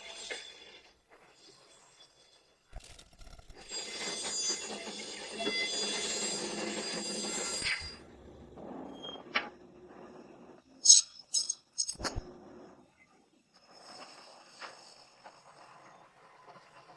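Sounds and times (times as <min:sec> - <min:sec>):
small mechanism rattling: 0:02.7 - 0:03.9
sharp click: 0:02.8 - 0:03.8.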